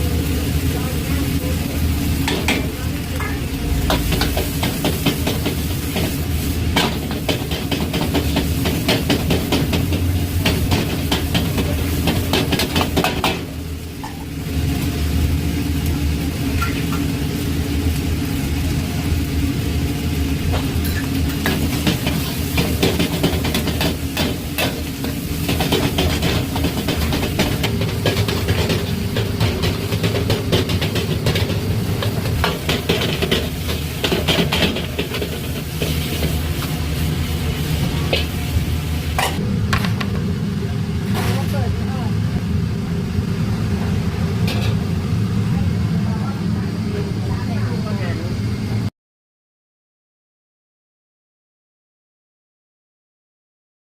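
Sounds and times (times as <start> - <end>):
low hum: 0.0 - 4.7
food sizzling: 0.0 - 47.6.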